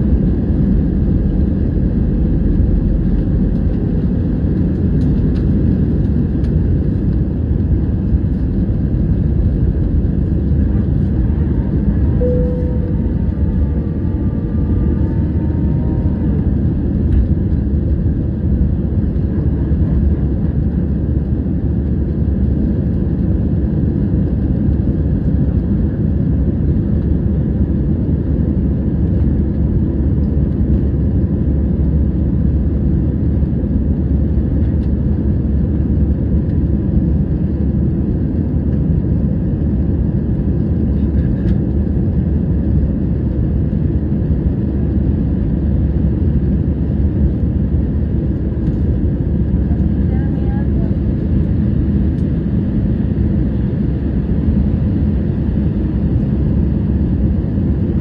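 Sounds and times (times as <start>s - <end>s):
jet engines roaring: 0.0s - 25.4s
faint whining tones: 10.7s - 17.3s.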